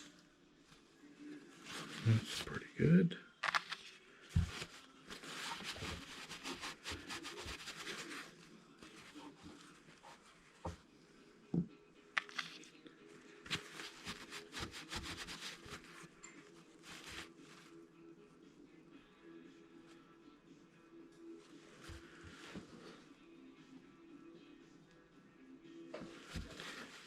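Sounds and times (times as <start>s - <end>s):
paper napkins rustling: 1.6s - 2.6s, 3.4s - 10.6s, 13.5s - 16.1s, 16.8s - 17.7s, 26.1s - 27.0s.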